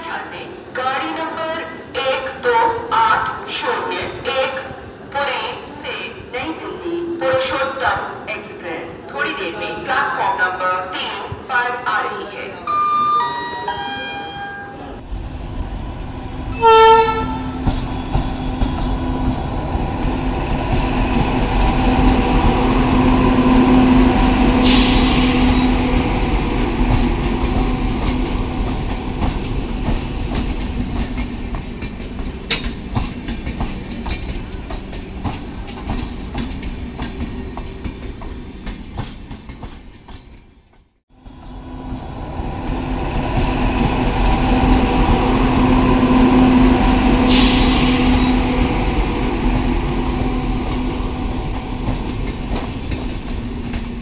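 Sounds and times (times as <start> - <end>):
train hum and rumble: 0.0 - 54.0
train horn blast: 16.5 - 17.8.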